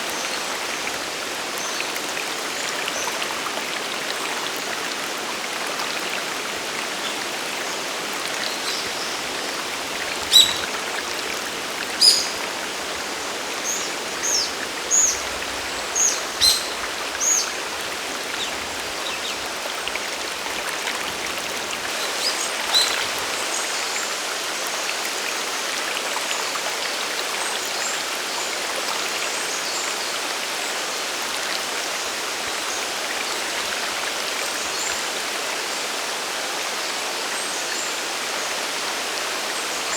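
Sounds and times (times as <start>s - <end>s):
rushing waterfall and stream: 0.0s - 39.9s
bird chirping: 10.3s - 10.7s, 12.0s - 12.4s.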